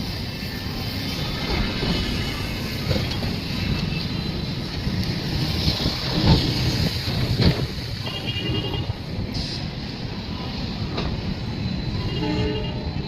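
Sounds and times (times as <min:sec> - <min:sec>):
train rumbling: 0:00.0 - 0:13.0
train knocks: 0:01.4 - 0:09.6.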